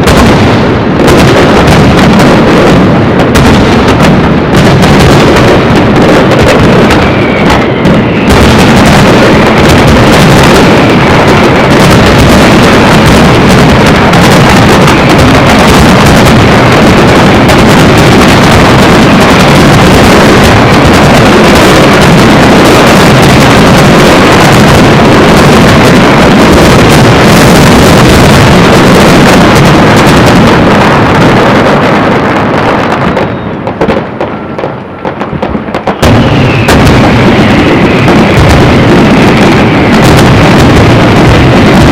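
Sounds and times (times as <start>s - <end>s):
fireworks barrage: 0.0s - 41.9s.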